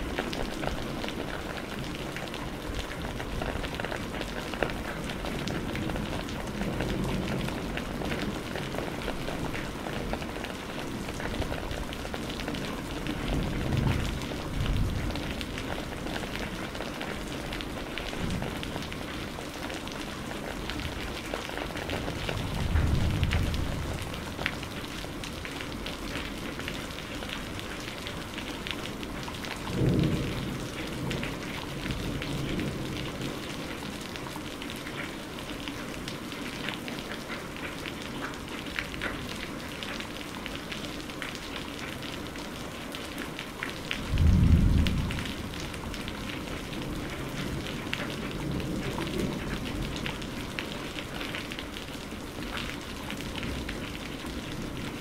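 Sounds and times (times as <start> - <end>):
rain pattering: 0.0 - 55.0
low thunder rumbles: 13.1 - 17.3, 22.0 - 24.8, 29.6 - 33.4, 44.0 - 50.4.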